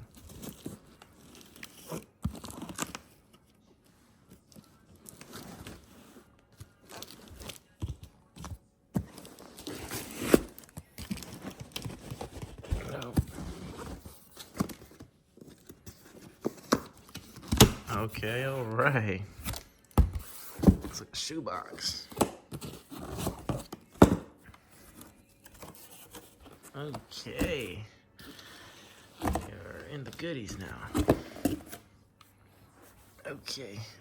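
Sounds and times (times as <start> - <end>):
cardboard tearing and crinkling: 0.0 - 3.3, 4.8 - 21.0, 22.1 - 27.2.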